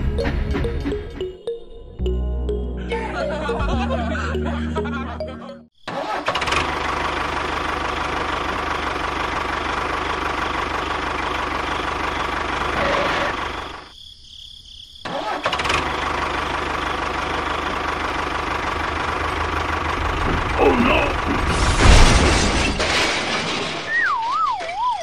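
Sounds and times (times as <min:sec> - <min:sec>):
small engine running: 0:06.2 - 0:13.8, 0:15.2 - 0:20.6.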